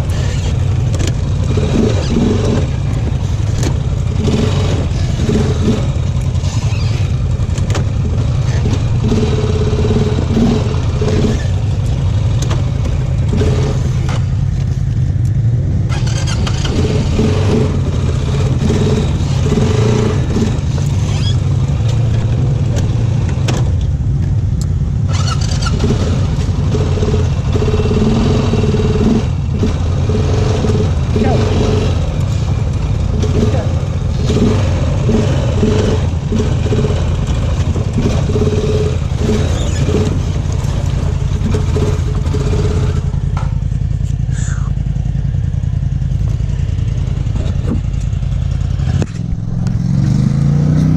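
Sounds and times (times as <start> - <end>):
off-road vehicle engine running: 0.0 - 50.9.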